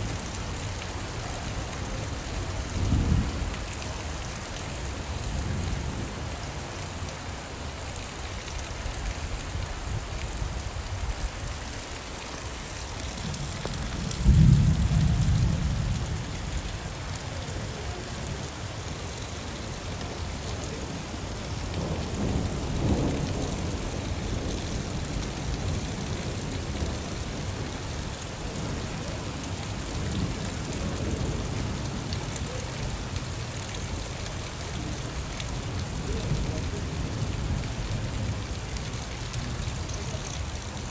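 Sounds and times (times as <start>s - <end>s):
heavy rainfall: 0.0s - 40.9s
thunder rumbling: 13.2s - 16.3s.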